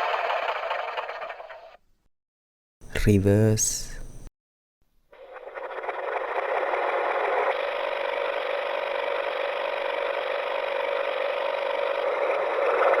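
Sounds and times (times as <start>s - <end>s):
reversed tractor engine start: 0.0s - 1.8s, 5.2s - 13.0s.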